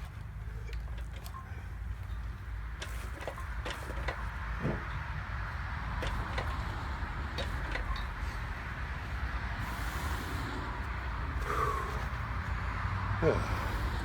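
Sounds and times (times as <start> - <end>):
wheeled cart knocking and rattling: 2.8 - 5.1, 5.8 - 8.5.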